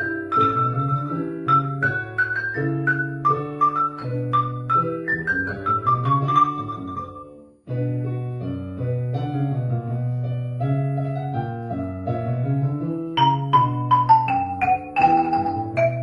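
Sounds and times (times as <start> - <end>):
keyboard chords: 0.0 - 16.0
mallet percussion notes: 13.2 - 16.0.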